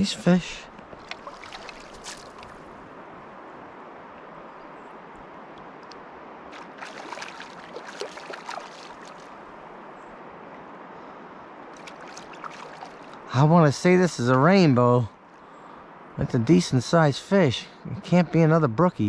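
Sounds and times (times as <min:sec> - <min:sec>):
creek flowing: 0:00.0 - 0:19.0
short sharp splashing: 0:01.0 - 0:02.7, 0:06.5 - 0:09.4, 0:11.8 - 0:13.2.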